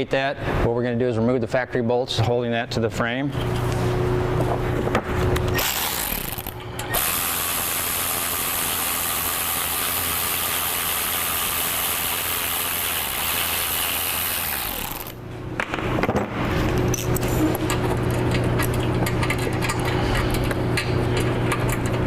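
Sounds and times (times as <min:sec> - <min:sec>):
power tool running on bolts: 0:05.5 - 0:15.2.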